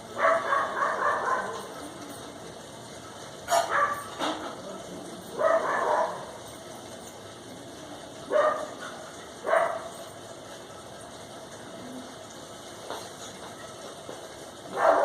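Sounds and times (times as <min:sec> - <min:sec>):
dog barking: 0:00.2 - 0:01.7, 0:03.5 - 0:04.1, 0:05.4 - 0:06.3, 0:08.3 - 0:08.8, 0:09.4 - 0:09.9, 0:14.7 - 0:15.0.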